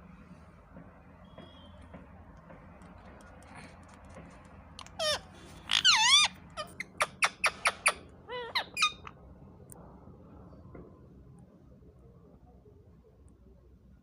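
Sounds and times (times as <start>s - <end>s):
parrot squawking: 4.8s - 9.1s.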